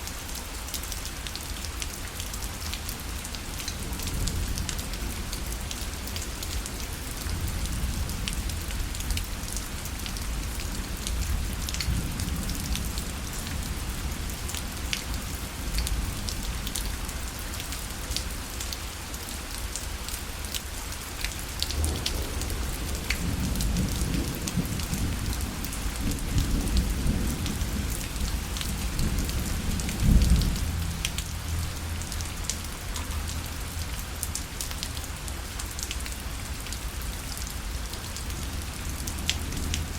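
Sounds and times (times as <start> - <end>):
rain on a parasol canopy: 0.0 - 39.9
low rumble of thunder: 3.8 - 16.7, 21.6 - 33.8.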